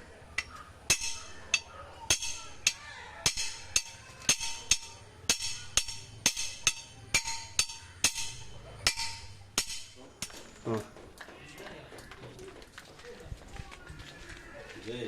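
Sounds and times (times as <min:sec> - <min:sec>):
hammer blows with metallic ring: 0:00.9 - 0:10.6.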